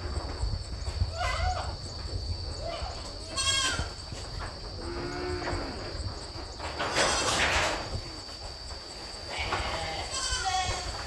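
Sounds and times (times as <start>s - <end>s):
goat bleating: 2.8s - 4.0s, 9.4s - 11.0s.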